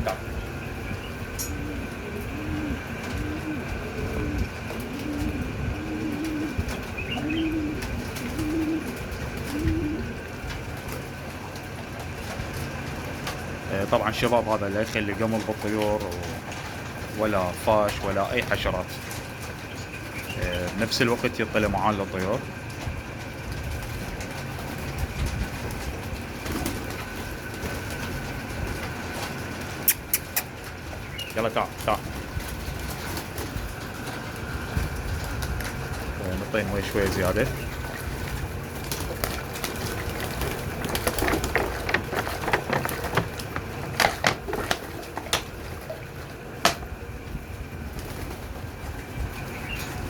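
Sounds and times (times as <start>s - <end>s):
pigeon cooing: 0.0s - 11.2s, 25.8s - 33.6s, 35.7s - 47.0s
water splashing in bird bath: 5.9s - 46.9s
sharp clicks: 29.9s - 30.5s.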